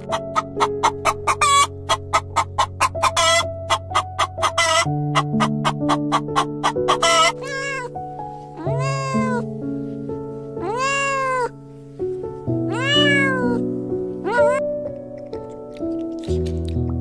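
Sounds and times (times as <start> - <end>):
animal calling: 0.0 - 8.0, 8.6 - 9.5, 10.6 - 11.6, 12.6 - 13.6, 14.2 - 14.7
background music: 0.0 - 17.0.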